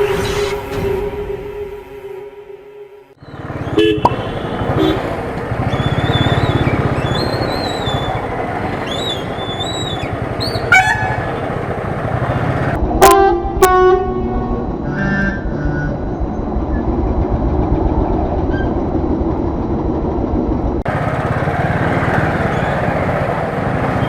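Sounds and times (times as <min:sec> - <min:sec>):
vehicle horns honking: 0:00.0 - 0:08.2, 0:09.0 - 0:11.5, 0:12.9 - 0:16.0
road and wind noise: 0:03.1 - 0:24.0
motorcycle engine running: 0:03.2 - 0:12.8, 0:16.2 - 0:24.0.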